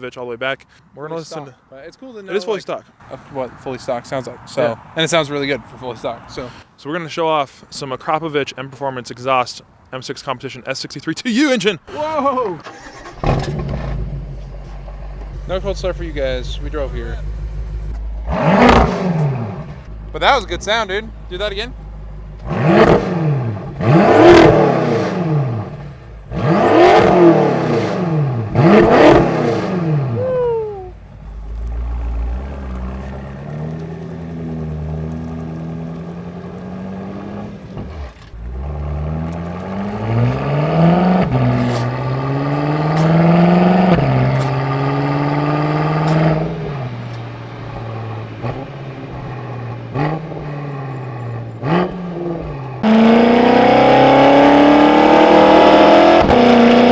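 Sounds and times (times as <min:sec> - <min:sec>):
car engine revving and idling: 0:03.0 - 0:06.7, 0:11.9 - 0:56.9
exhaust pops: 0:11.9 - 0:40.5, 0:41.1 - 0:56.9.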